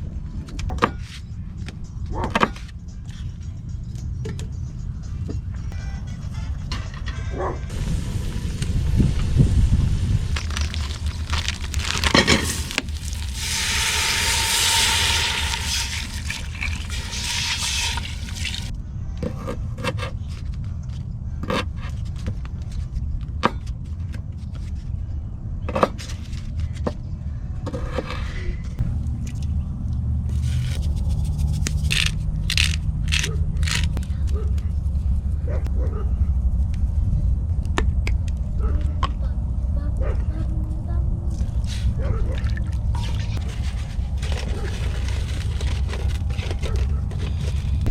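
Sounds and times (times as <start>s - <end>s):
steady low rumble: 7.6s - 19.1s, 32.2s - 47.9s
liquid pouring: 7.7s - 18.7s.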